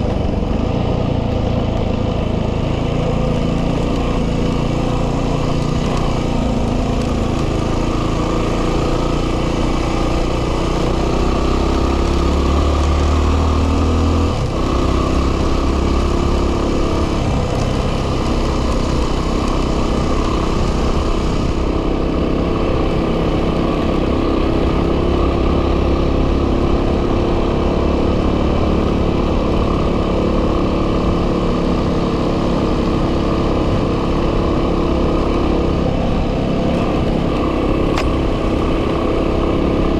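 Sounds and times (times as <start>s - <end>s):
dirt bike engine running: 0.0s - 39.9s
wind noise on microphone: 13.7s - 39.9s.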